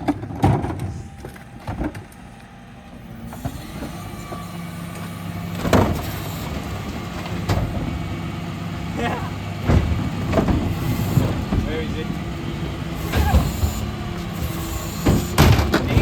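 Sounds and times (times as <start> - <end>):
diesel engine running: 0.0 - 16.0
loud clunk: 3.3 - 8.2, 9.6 - 11.9, 13.0 - 16.0.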